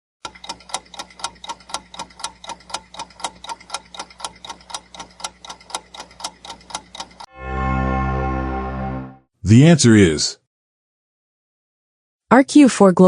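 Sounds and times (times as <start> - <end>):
clock ticking: 0.2 - 7.3.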